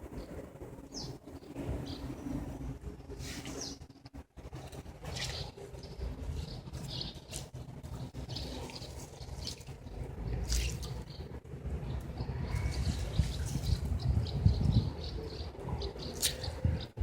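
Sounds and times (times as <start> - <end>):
steady low rumble: 0.0 - 17.0
birds chirping: 5.0 - 17.0.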